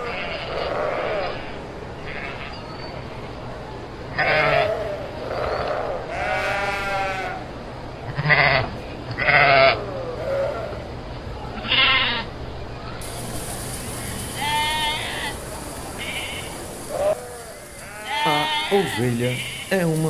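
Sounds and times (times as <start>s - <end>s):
sheep bleating: 17.7s - 20.0s.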